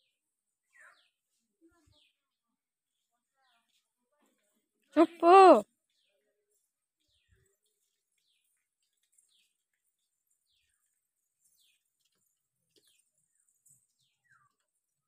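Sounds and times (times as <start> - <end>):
faint bird chirps: 0.0 - 2.3.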